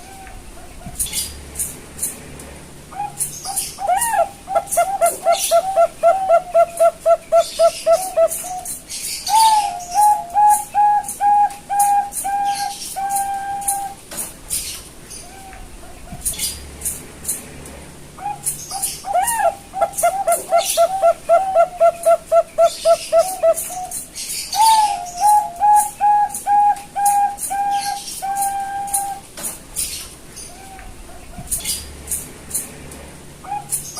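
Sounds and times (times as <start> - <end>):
dove cooing: 0.0 - 1.3, 2.9 - 14.0, 18.2 - 29.3, 33.4 - 33.9.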